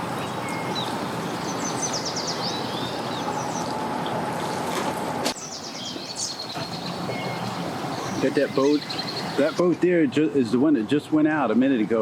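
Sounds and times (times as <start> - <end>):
small birds chirping: 0.0 - 3.8, 5.4 - 9.7
outdoor background noise: 0.0 - 12.0.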